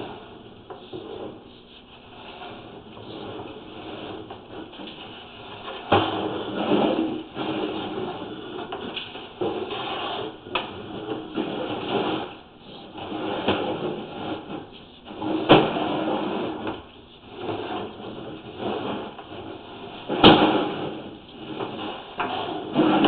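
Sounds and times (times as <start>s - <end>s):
camera cable scraping in pipe: 0.9s - 8.8s.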